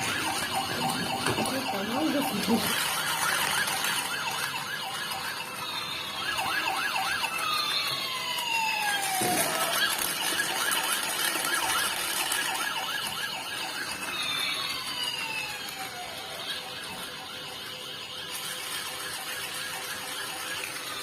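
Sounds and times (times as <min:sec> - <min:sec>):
falling siren sweeps: 0:00.0 - 0:21.0
toy siren warbling: 0:00.0 - 0:21.0.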